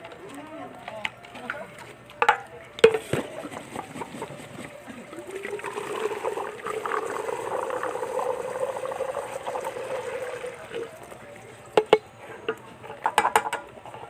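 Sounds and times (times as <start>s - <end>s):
fuel pouring into tank: 4.3s - 11.8s.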